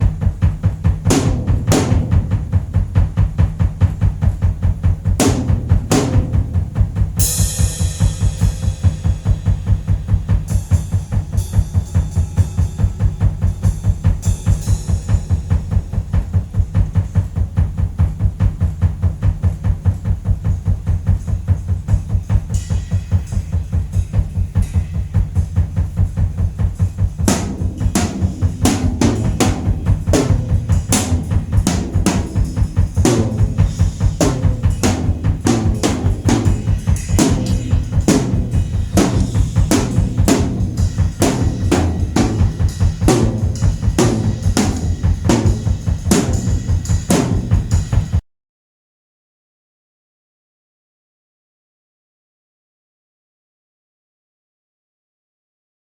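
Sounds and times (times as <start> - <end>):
fast bass drum beats: 0.0 - 48.2
snare drum hits: 1.0 - 4.0, 27.3 - 47.6.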